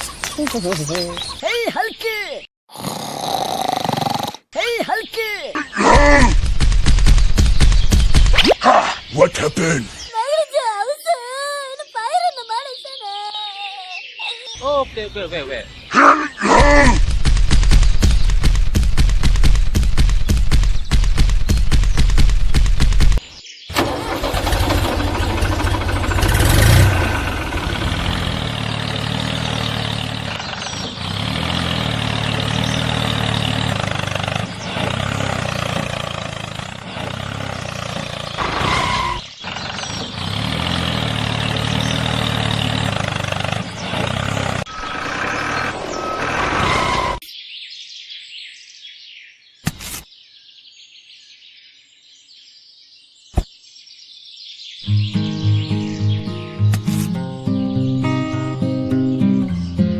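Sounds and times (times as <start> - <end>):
faint bird chirps: 7.7 - 16.3
tractor engine running: 17.1 - 47.2.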